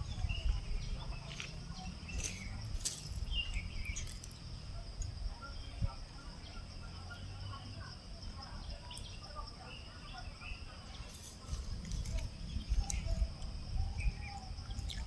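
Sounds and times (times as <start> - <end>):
bird chirps: 0.0 - 4.4
insects droning: 0.0 - 15.0.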